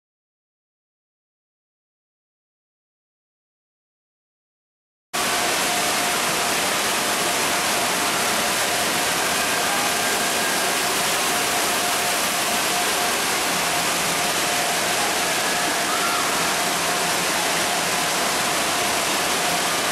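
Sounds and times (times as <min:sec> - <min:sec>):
rushing water: 0:05.2 - 0:19.9.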